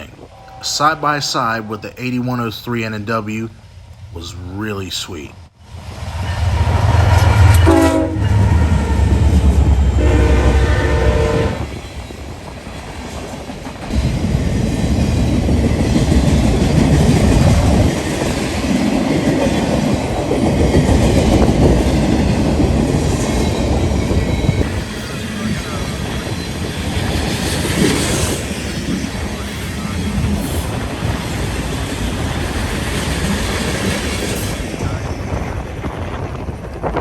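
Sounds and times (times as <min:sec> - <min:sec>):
train horn blasts: 0:07.2 - 0:11.7.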